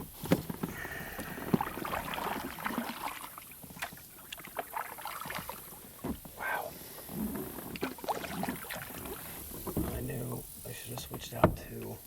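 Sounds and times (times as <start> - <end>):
knocks and clicks of kayak gear: 0.0 - 2.0, 5.8 - 6.4, 9.1 - 10.1, 11.0 - 12.0
light water noise: 0.0 - 12.0.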